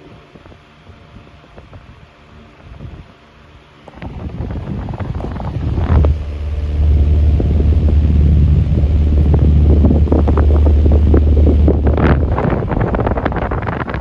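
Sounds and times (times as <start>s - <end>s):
table fan buffeting microphone: 3.8s - 14.0s.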